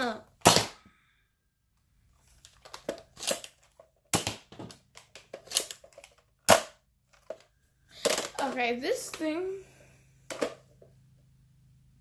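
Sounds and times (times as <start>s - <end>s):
toy blaster plastic snaps: 2.7s - 6.8s.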